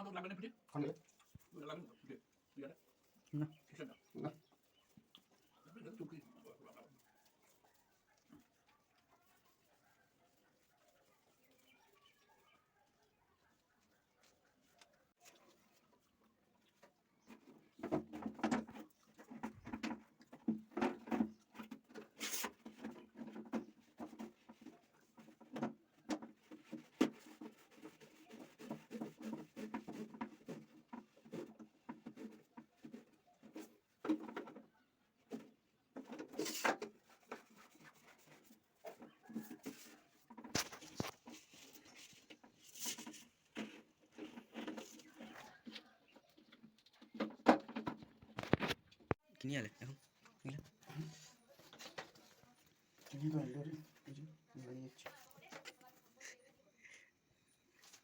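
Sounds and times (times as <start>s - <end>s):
scraping on plumbing fittings: 36.0s - 45.4s.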